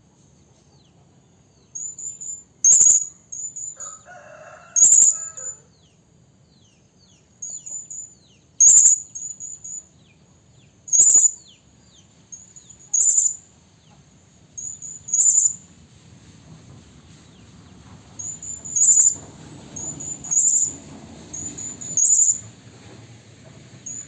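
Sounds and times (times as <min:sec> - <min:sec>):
parrot shrill high calls: 0:01.8 - 0:05.7, 0:08.6 - 0:09.8, 0:10.9 - 0:11.4, 0:12.9 - 0:13.4, 0:14.6 - 0:15.6, 0:18.2 - 0:19.2.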